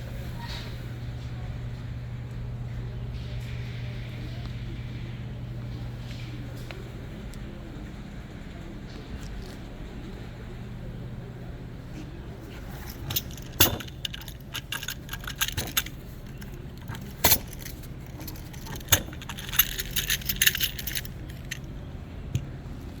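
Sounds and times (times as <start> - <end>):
bearing clicking and rattling: 12.5 - 22.5.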